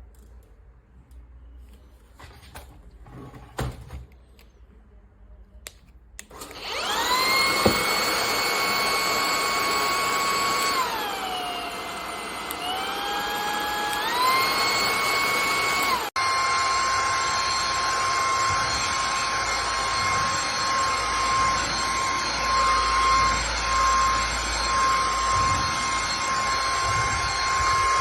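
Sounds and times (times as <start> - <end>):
stick vacuum cleaner whining: 6.2 - 28.0.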